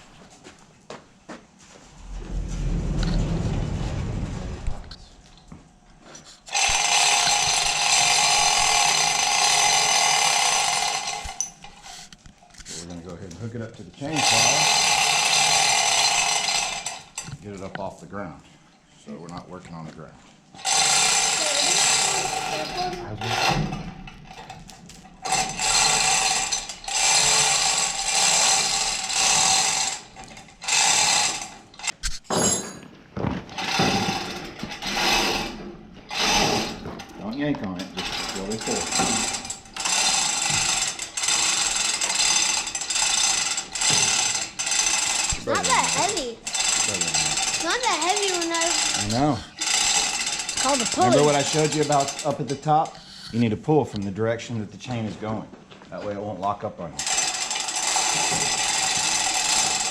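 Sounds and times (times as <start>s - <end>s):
chain hoist rattling and ratcheting: 6.1s - 17.5s, 20.6s - 32.8s, 33.5s - 53.2s, 57.0s - 59.9s.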